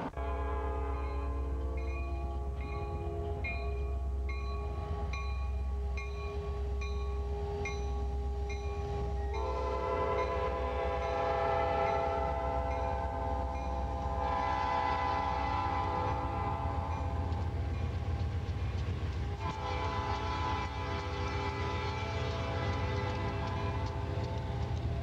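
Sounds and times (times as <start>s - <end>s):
train air horn blast: 0.0s - 3.4s, 8.2s - 17.2s, 19.4s - 24.1s
diesel locomotives rumbling past: 0.0s - 25.0s.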